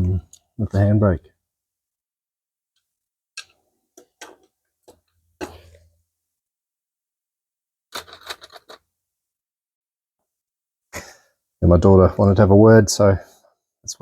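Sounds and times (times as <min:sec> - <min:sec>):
hard objects clicking and knocking: 0:07.9 - 0:08.8.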